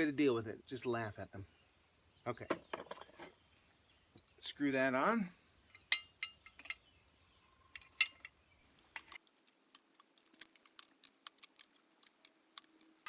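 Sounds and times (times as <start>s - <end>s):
sharp metal clicks: 7.8s - 13.0s.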